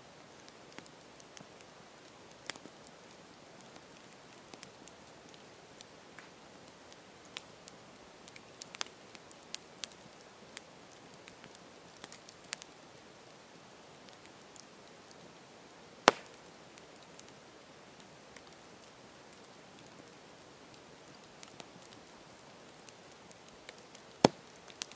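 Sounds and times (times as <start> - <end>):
campfire crackling and popping: 0.2 - 24.9.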